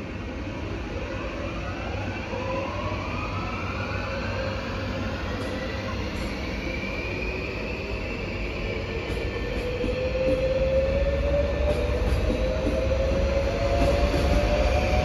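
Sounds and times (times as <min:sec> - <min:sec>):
train drive whine: 0:00.0 - 0:15.0
train wheels rumbling on track: 0:04.4 - 0:15.0.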